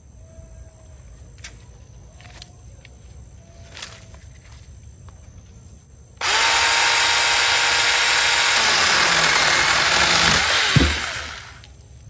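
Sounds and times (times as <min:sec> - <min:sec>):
chainsaw cutting branch: 0:06.2 - 0:11.5
sharp thud: 0:09.6 - 0:11.4.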